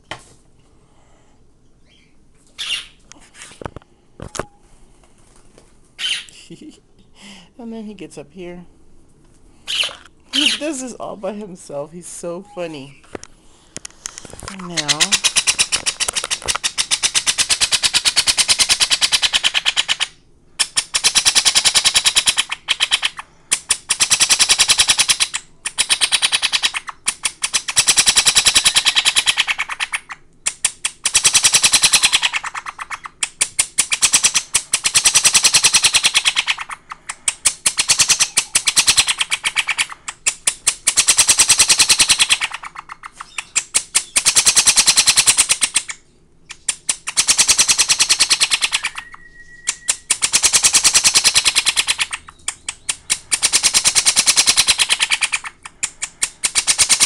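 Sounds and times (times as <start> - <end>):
parrot chick begging call: 1.8 - 3.0, 6.0 - 6.4, 9.7 - 10.9, 14.6 - 30.2, 31.0 - 57.0.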